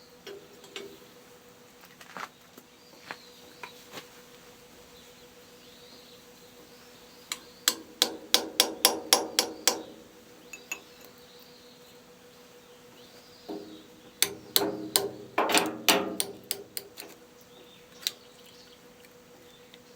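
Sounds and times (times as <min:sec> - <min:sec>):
hammer striking metal: 0:07.3 - 0:11.0, 0:13.5 - 0:17.2.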